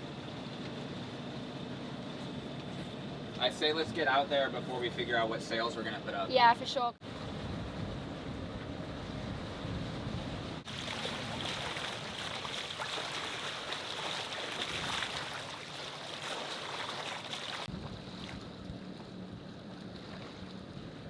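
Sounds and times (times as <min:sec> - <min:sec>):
low engine hum: 0:00.0 - 0:21.0
steady rumble: 0:00.0 - 0:21.0
water rushing along hull: 0:00.0 - 0:21.0
wind on microphone: 0:07.0 - 0:12.6, 0:17.6 - 0:21.0.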